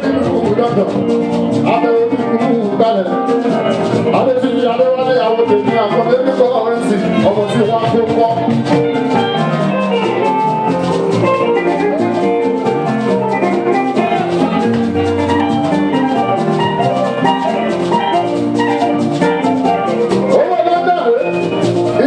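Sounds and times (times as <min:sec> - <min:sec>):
bright melodic notes: 0:00.0 - 0:22.0
drum and percussion rhythm: 0:00.0 - 0:22.0.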